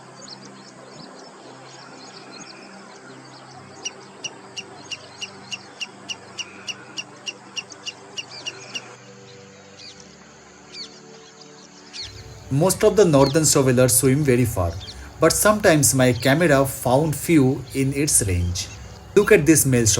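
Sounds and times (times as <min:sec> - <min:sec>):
faint chirps: 0:00.2 - 0:11.4, 0:12.0 - 0:19.9
bird calling sharp high notes: 0:12.1 - 0:19.9.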